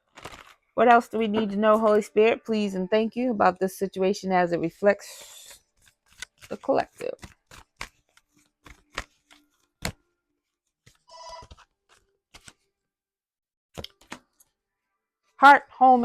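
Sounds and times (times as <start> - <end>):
cards being shuffled: 0.0 - 0.6, 5.8 - 10.0, 10.7 - 12.6, 13.8 - 14.5.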